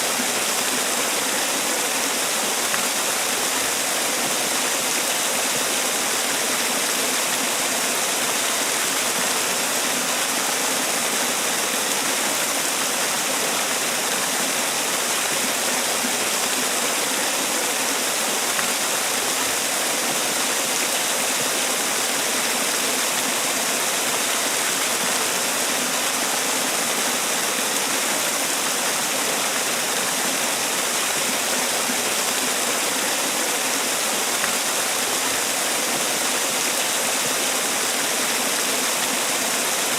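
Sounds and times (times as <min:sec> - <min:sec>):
waterfall pouring and splashing: 0:00.0 - 0:39.9.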